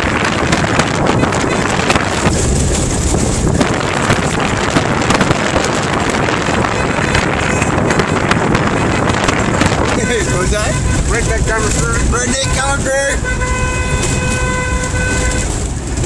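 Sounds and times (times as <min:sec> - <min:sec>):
knocks and rattles of vehicle: 0:00.0 - 0:16.0
off-road vehicle engine running: 0:00.0 - 0:16.0
wind buffeting microphone: 0:00.0 - 0:16.0.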